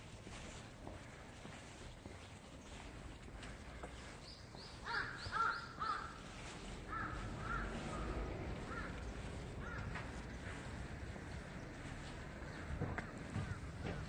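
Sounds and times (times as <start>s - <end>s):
bird calling: 3.7s - 10.8s.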